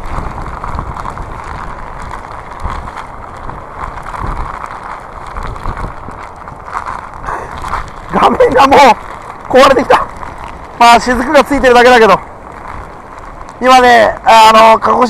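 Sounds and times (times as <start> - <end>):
heavy low rumble: 0.0 - 15.0
wind buffeting microphone: 0.0 - 15.0.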